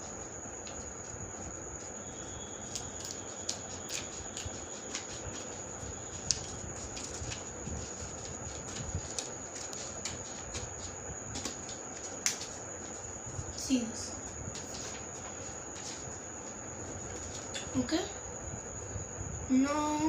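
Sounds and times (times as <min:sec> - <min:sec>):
faint high whine: 0:00.0 - 0:20.0
steady hiss: 0:00.0 - 0:20.0
scissors snipping paper: 0:02.6 - 0:05.5.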